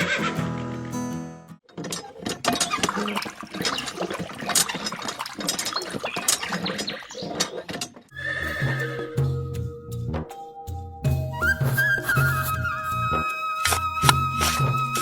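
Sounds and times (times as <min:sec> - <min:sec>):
music: 0:00.0 - 0:01.6, 0:08.1 - 0:15.0
horse whinnying: 0:08.1 - 0:09.2.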